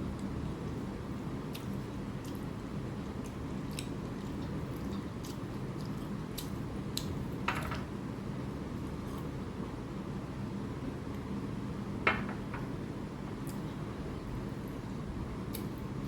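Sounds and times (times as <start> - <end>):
person chewing food: 1.5 - 7.2.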